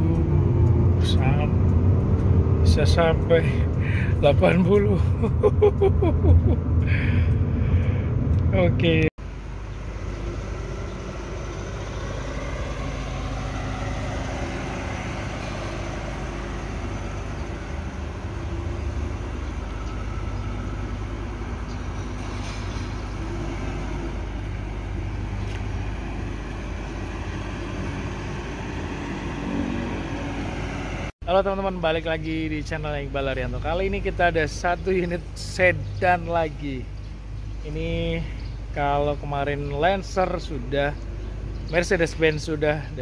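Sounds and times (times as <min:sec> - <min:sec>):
vehicle engine running: 0:00.0 - 0:31.1.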